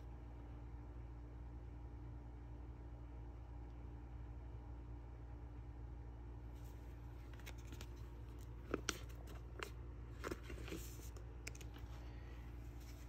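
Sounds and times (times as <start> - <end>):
steady low hum: 0.0 - 13.0
cards clicking and crinkling: 7.2 - 11.9.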